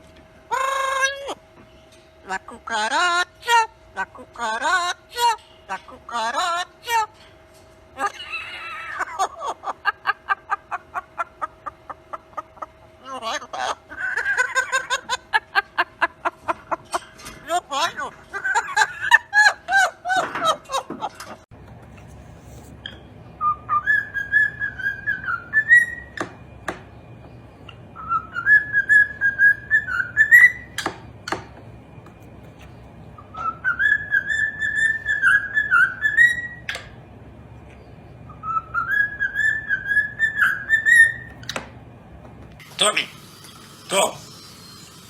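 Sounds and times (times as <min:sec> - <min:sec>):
parrot whistling a tune: 0:23.4 - 0:26.2, 0:28.0 - 0:30.8, 0:33.2 - 0:36.6, 0:38.3 - 0:41.4.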